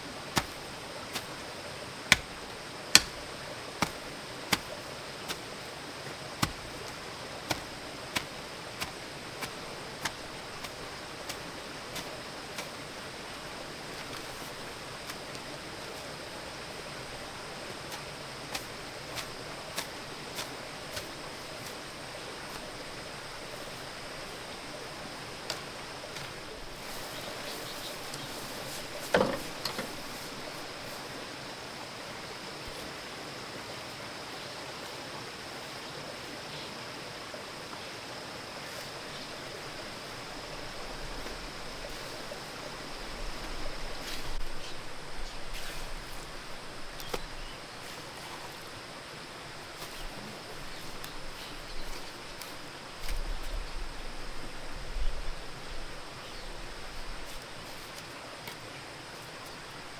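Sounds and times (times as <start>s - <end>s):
rustling and small knocks: 0.0s - 33.1s, 38.6s - 48.9s, 49.6s - 54.2s, 56.2s - 59.9s
outdoor background hiss: 0.0s - 59.9s.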